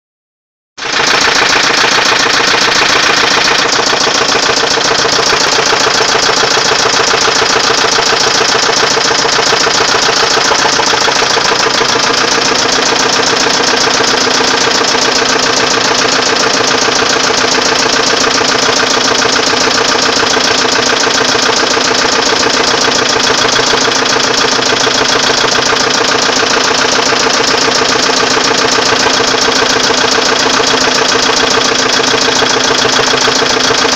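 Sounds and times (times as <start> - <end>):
car engine running: 0.8 - 33.9
rapid even engine knocking: 0.8 - 33.9.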